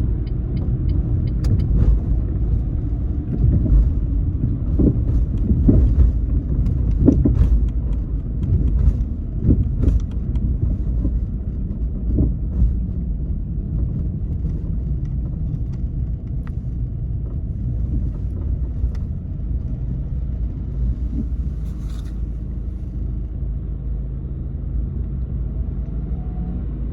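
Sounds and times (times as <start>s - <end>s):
car engine and road noise: 0.0s - 26.9s
sharp knocks and bumps: 3.3s - 11.2s.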